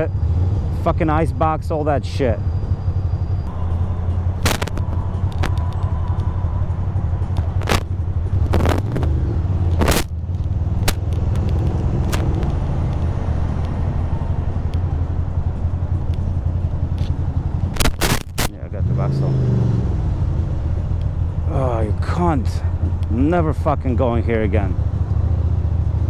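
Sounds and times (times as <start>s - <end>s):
motorcycle engine low rumble: 0.0s - 26.0s
sharp clicks or knocks: 4.4s - 6.3s, 9.7s - 13.8s, 17.0s - 18.5s.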